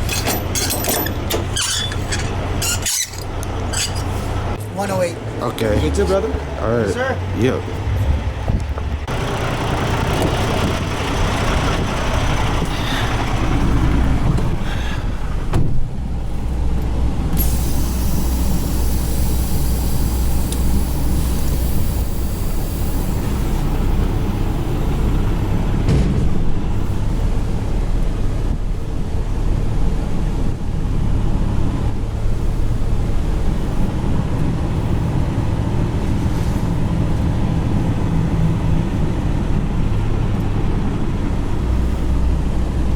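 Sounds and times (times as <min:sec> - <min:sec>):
truck diesel engine humming: 0:00.0 - 0:42.9
air hissing: 0:17.4 - 0:25.8.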